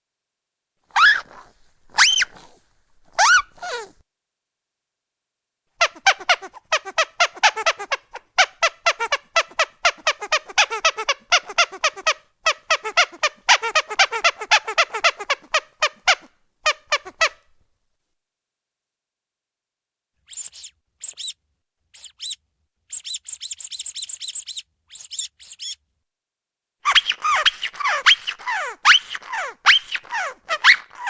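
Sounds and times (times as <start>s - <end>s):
rubber duck squeak toy squeezed: 0.9s - 3.9s, 5.8s - 17.5s, 20.3s - 25.8s, 26.8s - 31.0s.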